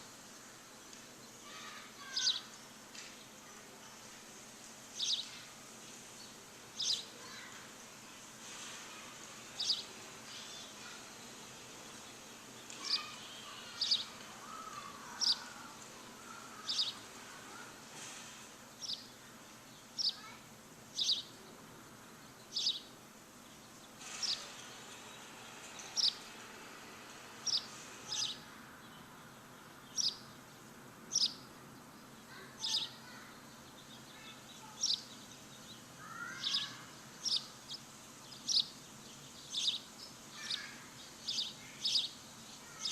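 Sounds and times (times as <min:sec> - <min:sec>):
background hiss: 0:00.0 - 0:42.9
birds warbling: 0:01.4 - 0:02.5, 0:06.8 - 0:07.6, 0:12.0 - 0:17.8, 0:23.5 - 0:26.4, 0:27.4 - 0:28.5, 0:29.9 - 0:30.4, 0:32.2 - 0:42.9
bird down-sweeping chirp: 0:27.4 - 0:28.4, 0:33.9 - 0:42.9.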